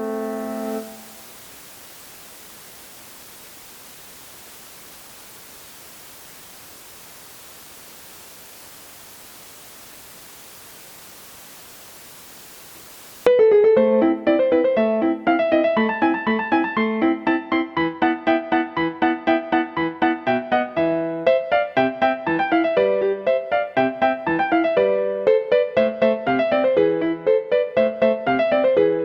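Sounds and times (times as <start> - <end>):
piano playback notes: 0.0 - 1.3, 13.3 - 29.0
line noise hiss: 0.0 - 13.3, 15.3 - 28.7.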